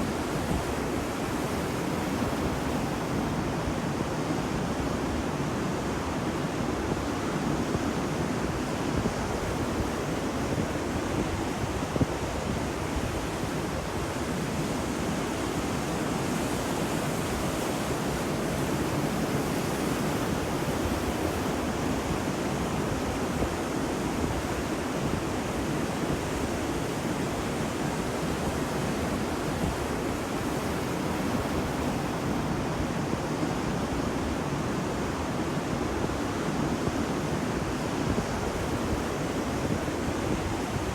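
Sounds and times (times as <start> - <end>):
ocean surf washing onto beach: 0.0 - 40.9.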